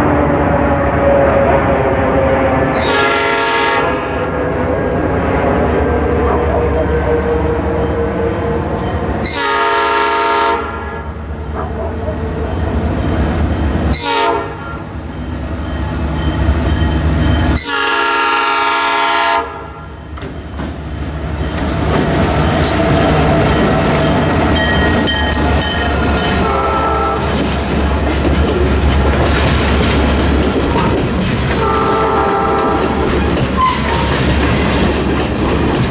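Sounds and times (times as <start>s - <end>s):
locomotive air horn: 0.0s - 4.7s, 6.0s - 11.1s, 13.9s - 14.8s, 17.5s - 19.8s, 26.4s - 27.4s, 31.5s - 33.9s
train wheels clacking over rails: 20.1s - 35.9s.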